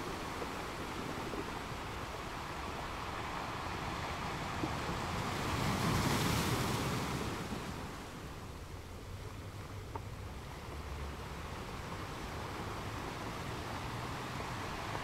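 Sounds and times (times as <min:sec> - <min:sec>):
wind noise on microphone: 0:00.0 - 0:08.7
rushing sea water: 0:00.0 - 0:09.2, 0:10.4 - 0:15.0.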